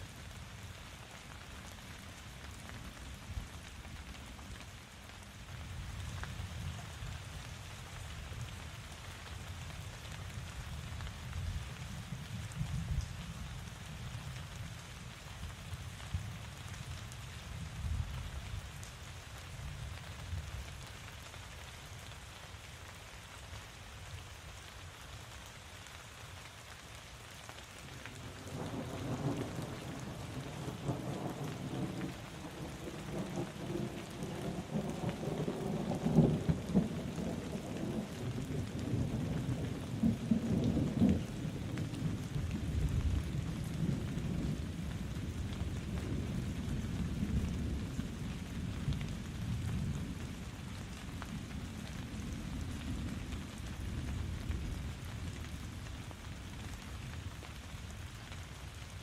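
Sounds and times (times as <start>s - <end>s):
steady rainfall: 0.0s - 59.0s
thunder rumbling: 28.4s - 50.4s.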